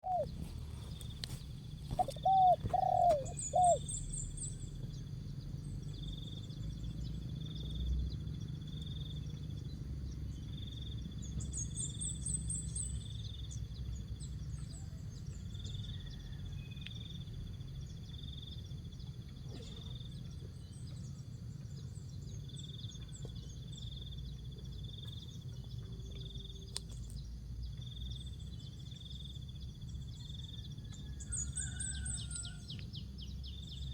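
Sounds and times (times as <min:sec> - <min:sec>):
dove cooing: 0:00.0 - 0:03.9
small bird chirps: 0:00.0 - 0:05.0
steady low hum: 0:00.0 - 0:07.4.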